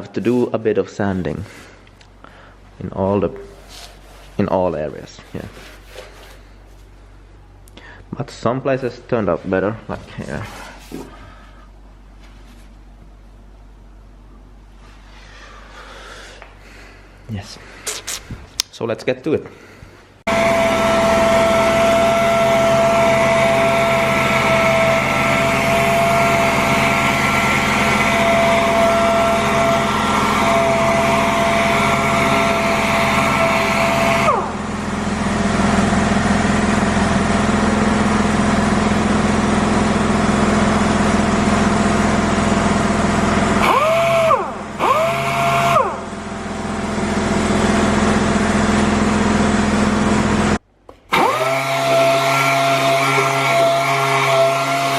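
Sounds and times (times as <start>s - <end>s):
orbital sander whining: 20.3s - 50.5s, 51.1s - 54.9s.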